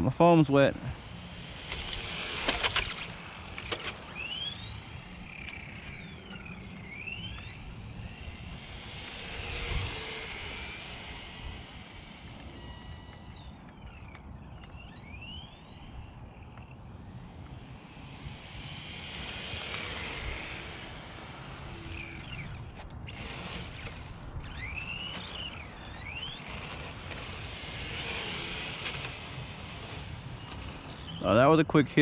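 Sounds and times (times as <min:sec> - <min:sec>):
rc car motor whining: 0:00.0 - 0:32.0.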